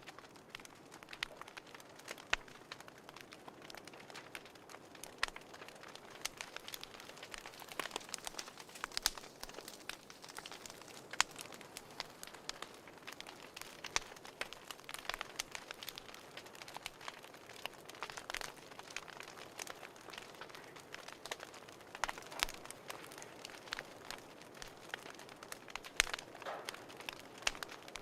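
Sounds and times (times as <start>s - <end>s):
fireplace crackling: 0.0s - 28.0s
soft steady hiss: 0.0s - 28.0s.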